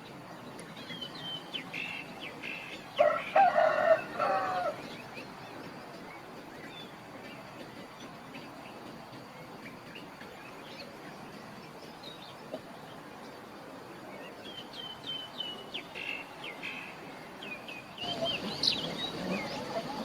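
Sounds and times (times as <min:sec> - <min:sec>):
small birds chirping: 0:14.2 - 0:20.0.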